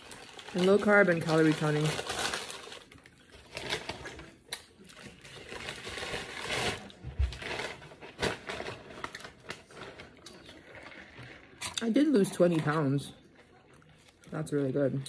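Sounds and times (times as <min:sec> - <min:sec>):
person chewing food: 0:13.2 - 0:14.3.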